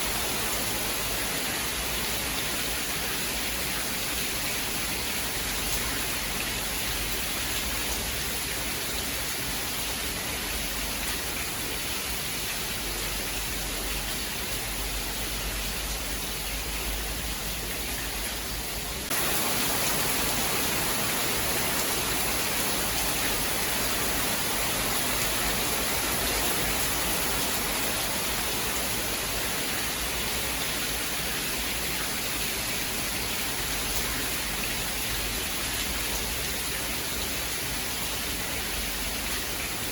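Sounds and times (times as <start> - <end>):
dense rain hiss: 0.0 - 39.9.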